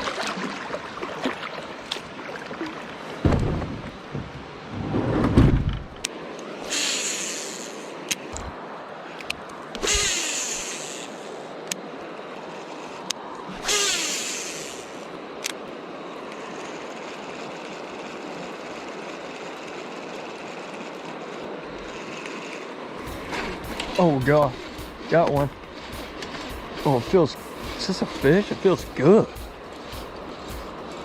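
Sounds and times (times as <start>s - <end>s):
river water rushing: 0.0s - 4.8s, 6.0s - 31.0s
loud swishes: 23.0s - 31.0s
sharp clicks: 23.0s - 31.0s.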